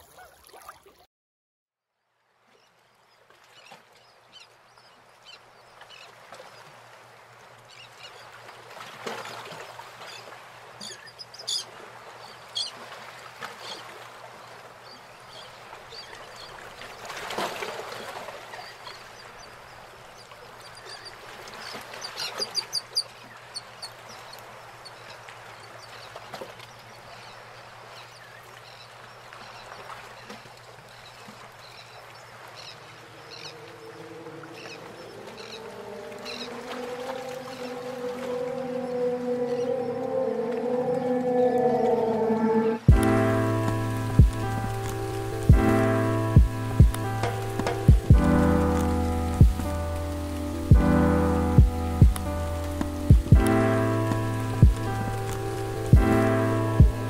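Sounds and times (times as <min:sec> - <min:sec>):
birds chirping: 0:30.9 - 0:57.0.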